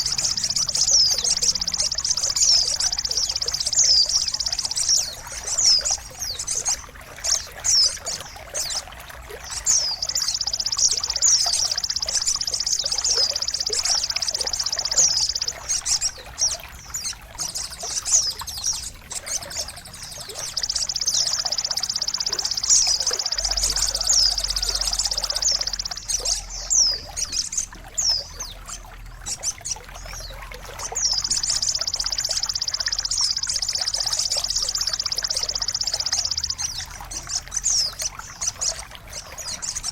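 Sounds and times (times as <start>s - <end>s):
songbird high trills: 0.0s - 39.9s
trickling water: 0.0s - 39.9s
downward-sweeping chirps: 9.5s - 16.2s, 19.6s - 27.1s.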